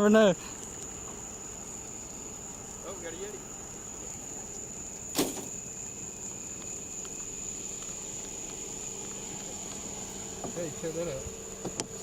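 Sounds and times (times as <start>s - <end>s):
high-pitched insect drone: 0.0s - 12.0s
sharp knock: 5.1s - 5.5s.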